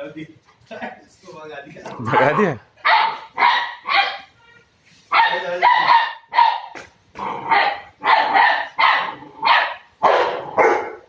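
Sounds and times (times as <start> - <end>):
puppy barking: 2.0 - 4.4, 5.1 - 11.0.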